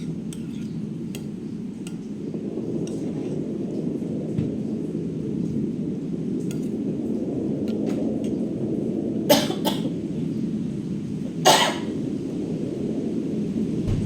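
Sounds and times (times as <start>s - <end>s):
rain: 0.0s - 14.0s
storm wind: 0.0s - 14.0s
person coughing: 9.3s - 10.0s, 11.4s - 12.0s.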